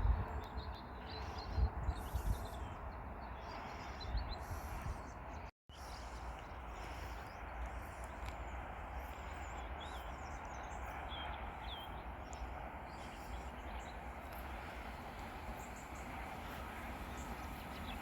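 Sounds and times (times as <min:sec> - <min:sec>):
bird chirps: 0:09.0 - 0:14.4.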